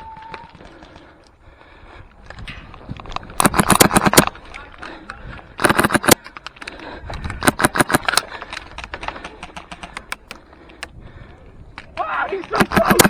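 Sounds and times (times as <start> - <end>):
airsoft rifle firing: 3.4 - 4.3, 5.6 - 6.3, 7.4 - 8.7, 9.8 - 10.4, 12.6 - 13.0.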